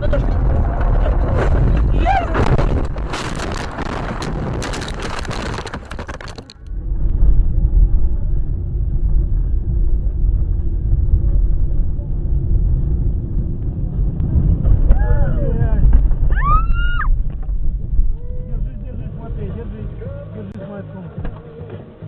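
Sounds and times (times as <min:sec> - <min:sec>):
crackling road noise: 0:00.0 - 0:22.0
vehicle low rumble: 0:00.0 - 0:22.0
faint hum: 0:06.7 - 0:20.6.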